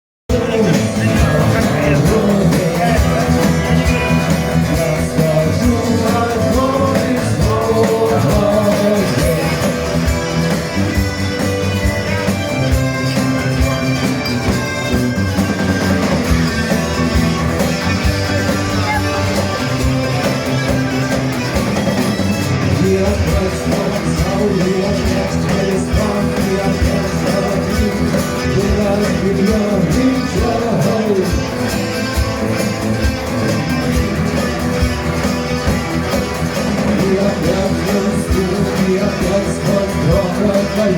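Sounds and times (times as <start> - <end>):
person singing: 0.3 - 9.9, 22.6 - 31.6, 36.8 - 40.9
live rock band: 0.3 - 40.9.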